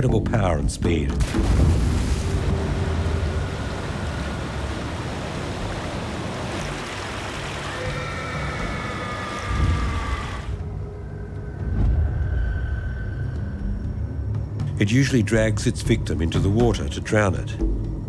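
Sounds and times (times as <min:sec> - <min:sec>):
loud splashing: 0:01.2 - 0:10.7
churning wash of water: 0:01.2 - 0:11.0.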